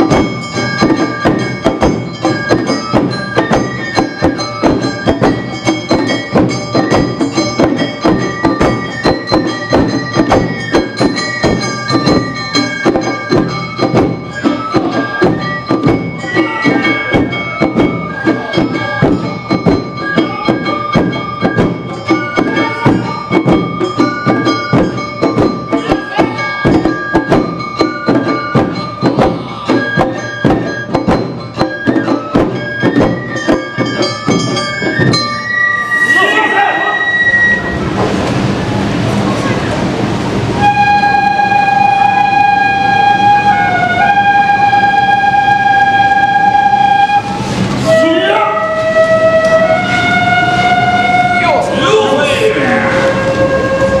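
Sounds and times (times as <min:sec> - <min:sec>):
hand gong beat: 0:00.0 - 0:35.5
bamboo flute melody: 0:00.0 - 0:39.6, 0:40.4 - 0:54.0
drums beating: 0:00.0 - 0:54.0.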